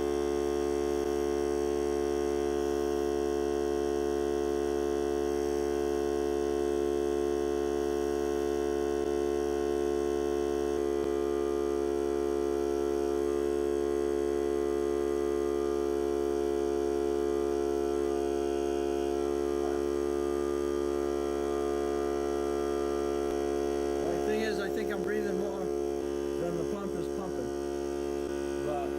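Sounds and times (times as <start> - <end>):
air compressor humming: 7.8 - 28.9.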